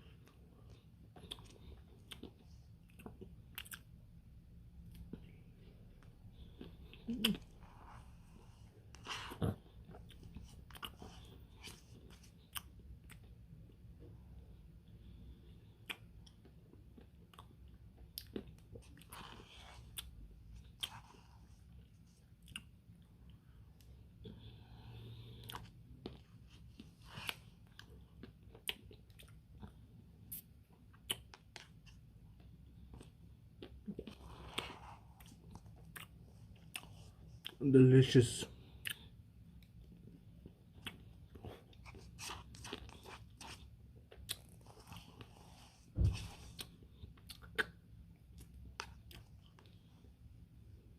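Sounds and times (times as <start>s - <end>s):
chewing and crunching: 0.0s - 3.9s, 4.8s - 37.6s, 38.6s - 50.1s
mouth chewing smacks: 0.7s - 3.9s, 6.4s - 7.9s, 15.8s - 21.1s, 38.8s - 45.3s, 46.6s - 49.8s.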